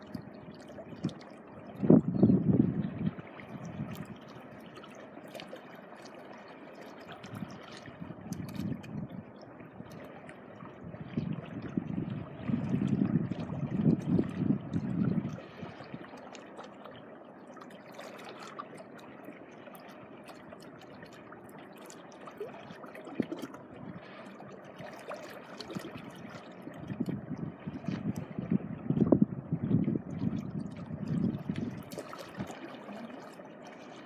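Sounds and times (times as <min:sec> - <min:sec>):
small waves washing on beach: 0:30.2 - 0:34.0.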